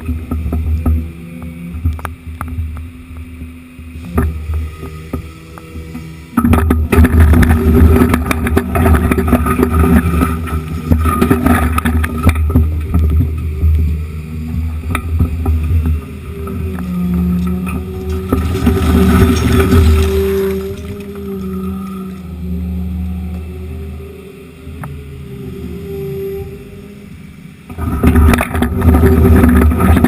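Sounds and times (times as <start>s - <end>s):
hydraulics whining: 0.0s - 30.0s
excavator diesel engine: 4.0s - 29.7s
concrete chunks clattering: 17.4s - 21.7s.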